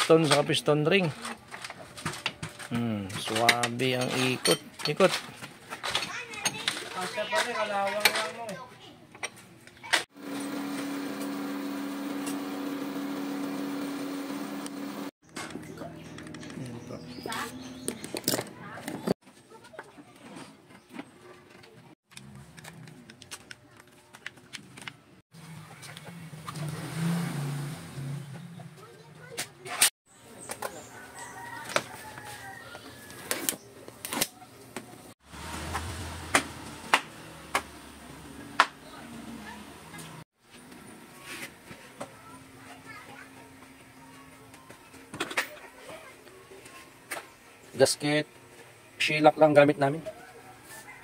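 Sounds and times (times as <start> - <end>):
tools and metal parts clinking: 1.0 - 7.1, 17.9 - 19.1
machine hum: 10.2 - 15.1.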